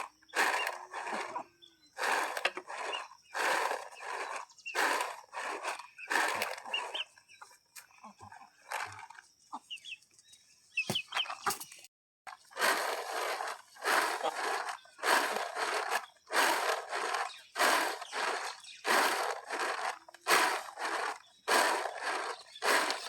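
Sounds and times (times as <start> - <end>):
rhythmic rasping strokes: 12.6 - 23.0.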